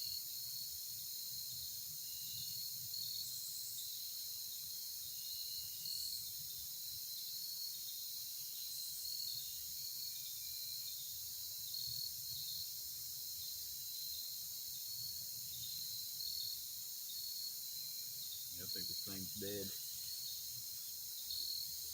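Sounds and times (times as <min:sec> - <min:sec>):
insects chirping shrilly: 0:15.8 - 0:21.9.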